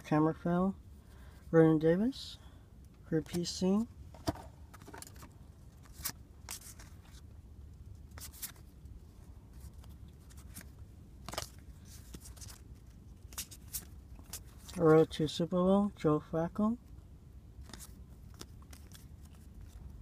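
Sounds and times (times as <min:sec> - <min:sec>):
card wrappers crinkling: 0:04.8 - 0:07.2, 0:08.1 - 0:08.7, 0:09.6 - 0:15.1, 0:17.6 - 0:19.8.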